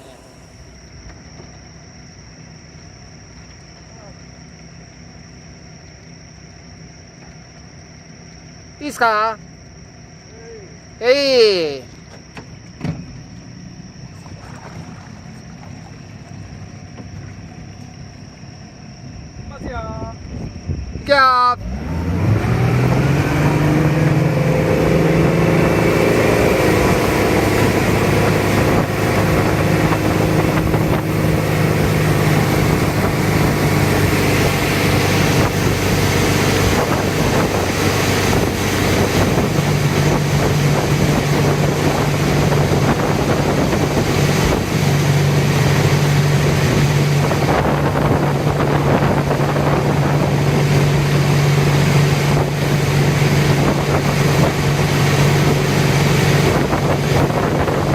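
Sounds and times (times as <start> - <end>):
boat engine running: 0.0 - 20.0, 20.6 - 57.9
wind buffeting microphone: 19.2 - 21.3, 21.9 - 57.9.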